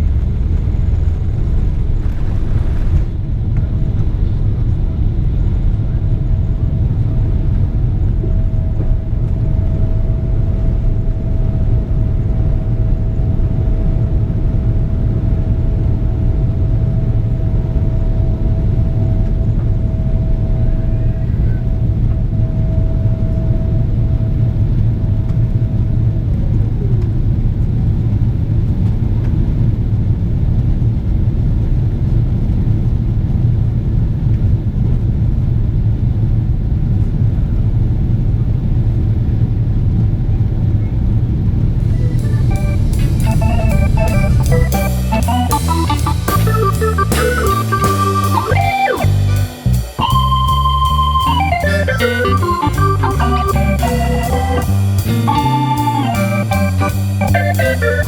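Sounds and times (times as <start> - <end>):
aircraft cabin engine rumble: 0.0 - 54.0
thin steady whine: 41.8 - 58.0.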